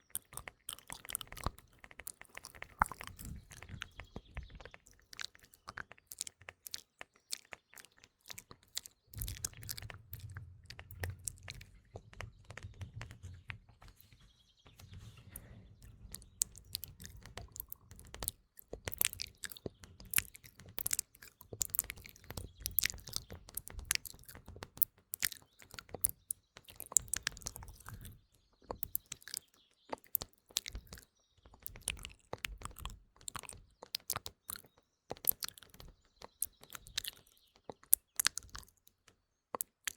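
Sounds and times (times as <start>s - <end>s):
wet mouth clicks and smacks: 0.0s - 11.6s, 16.1s - 39.9s
birdsong: 0.0s - 39.9s.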